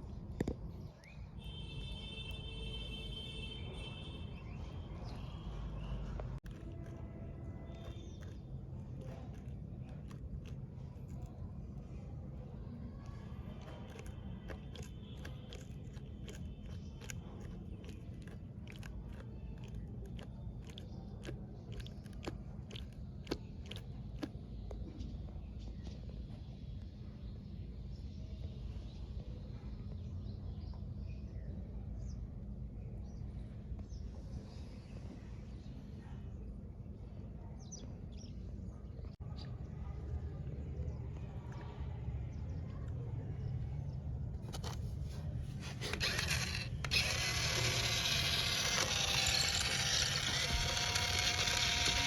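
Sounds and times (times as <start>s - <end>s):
toy motor gearbox ratcheting and whirring: 6.5s - 7.0s, 7.7s - 11.3s, 13.6s - 24.3s, 45.6s - 52.0s.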